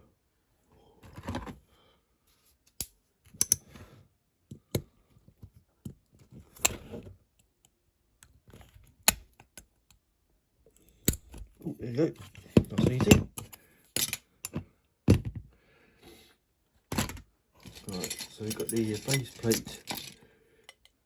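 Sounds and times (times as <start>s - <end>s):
rustling handling noise: 16.9s - 20.2s.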